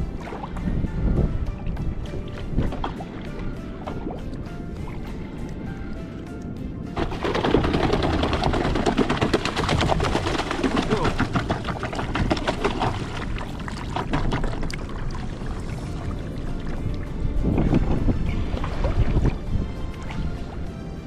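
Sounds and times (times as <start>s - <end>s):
fish tail beating against hull: 7.0s - 15.9s.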